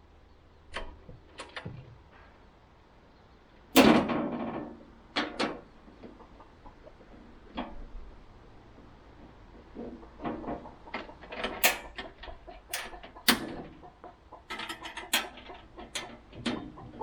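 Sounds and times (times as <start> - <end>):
metallic clicks and knocks: 9.8 - 13.8, 14.4 - 17.0.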